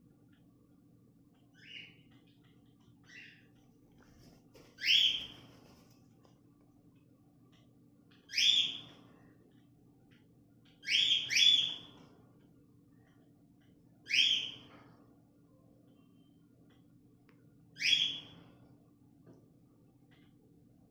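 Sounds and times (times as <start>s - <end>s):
faint low hum: 0.0s - 20.9s
bird whistled calls: 8.3s - 8.8s, 10.8s - 11.9s, 14.1s - 14.6s, 17.8s - 18.3s.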